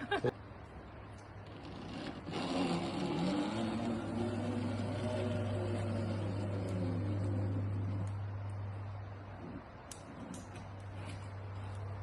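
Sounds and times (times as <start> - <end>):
zipline pulleys whirring on cable: 1.4 - 8.6.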